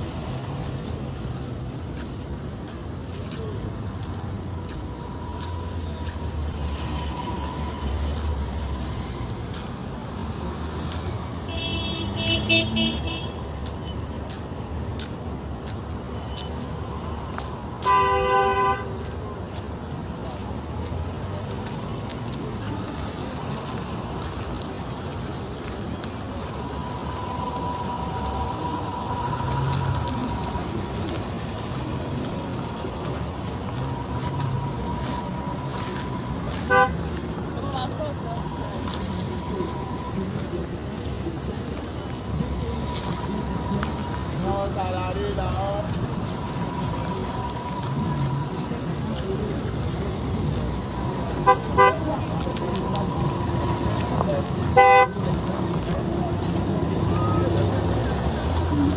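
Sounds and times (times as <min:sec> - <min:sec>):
road traffic: 0:00.0 - 0:58.9
loud horn blast: 0:36.7 - 0:37.0, 0:51.4 - 0:52.1
vehicle horn tooting: 0:51.4 - 0:52.0.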